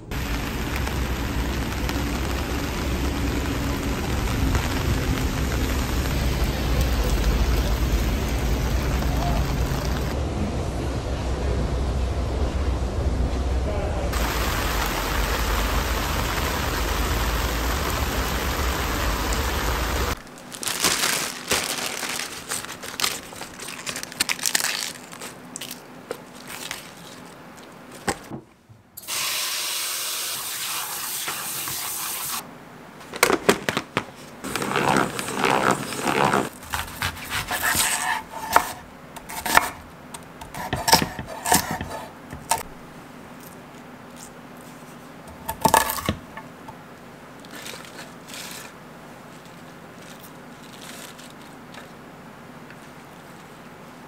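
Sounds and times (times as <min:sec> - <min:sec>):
heavy rain pouring: 0:00.0 - 0:22.4
water running: 0:00.1 - 0:10.2, 0:14.2 - 0:20.2
knife slicing on cutting board: 0:36.7 - 0:39.8, 0:40.4 - 0:42.6.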